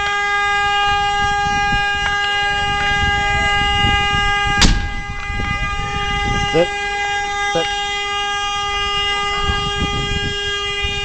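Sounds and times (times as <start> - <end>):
vehicle horn blaring: 2.7 - 11.0.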